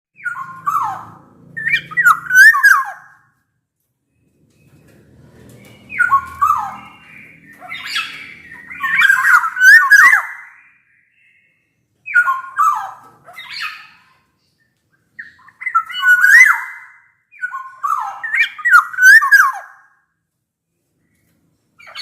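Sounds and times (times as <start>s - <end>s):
bird fluty whistled song: 0.2s - 3.3s, 4.2s - 20.0s, 21.8s - 22.0s
harsh bird squawks: 0.2s - 3.4s, 5.9s - 11.4s, 12.1s - 14.4s, 15.2s - 20.0s.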